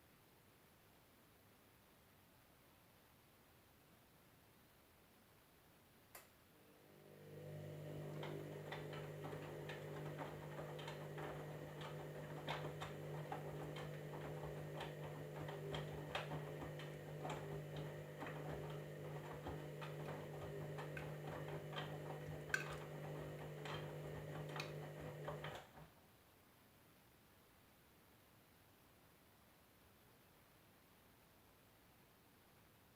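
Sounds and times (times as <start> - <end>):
washing machine motor humming: 6.6 - 25.9.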